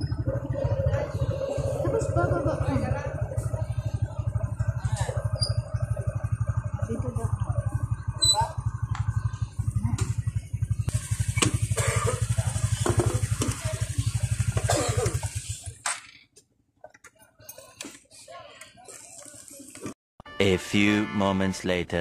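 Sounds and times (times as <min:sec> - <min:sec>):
motorcycle engine running: 0:00.0 - 0:15.8.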